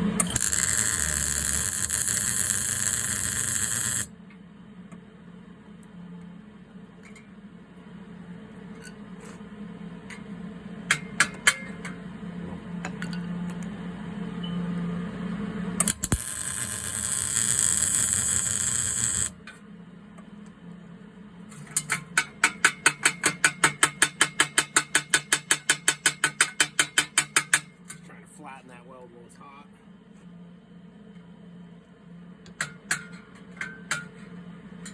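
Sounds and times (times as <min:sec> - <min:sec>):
welding arc hissing and crackling: 0:00.2 - 0:04.1, 0:15.8 - 0:19.4.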